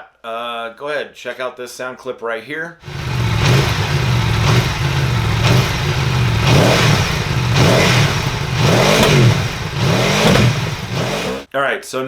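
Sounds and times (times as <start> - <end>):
motorcycle engine revving: 2.8 - 11.5.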